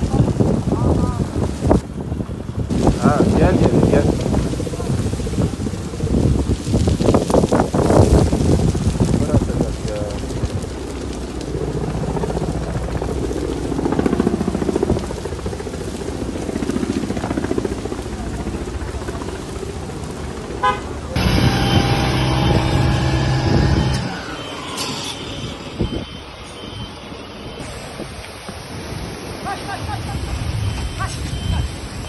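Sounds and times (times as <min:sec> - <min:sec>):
engine rumbling: 0:00.0 - 0:28.6
steady horn tone: 0:20.6 - 0:27.0.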